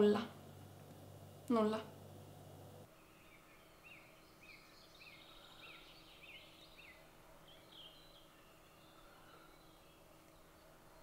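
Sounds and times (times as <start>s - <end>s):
faint hum: 0.0s - 11.0s
bird chirping: 2.5s - 11.0s.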